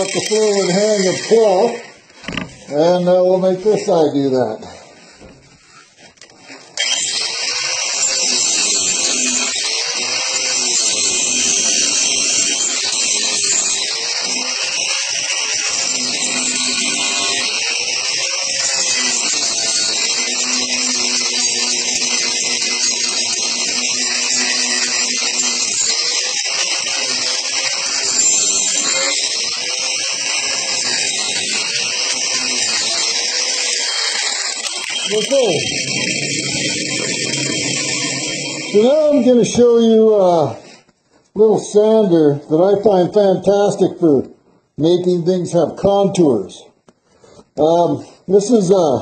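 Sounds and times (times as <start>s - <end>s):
angle grinder grinding wood: 0.0s - 40.9s.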